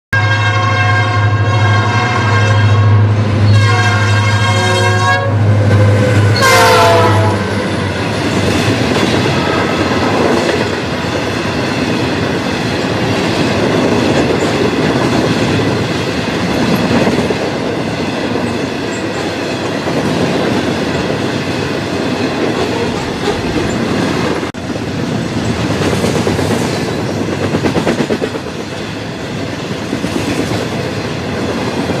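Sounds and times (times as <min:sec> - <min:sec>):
locomotive horn blasts: 0:00.1 - 0:07.6
low locomotive drone: 0:00.2 - 0:32.0
freight cars clattering on rails: 0:07.8 - 0:24.6.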